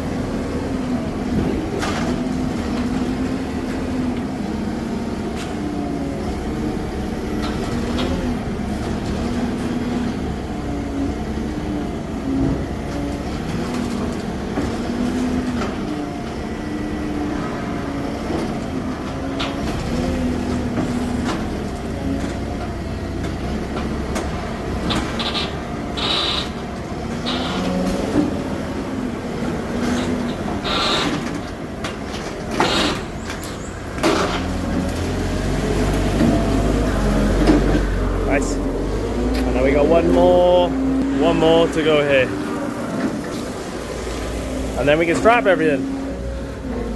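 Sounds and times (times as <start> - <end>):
engine revving: 0.0 - 46.9.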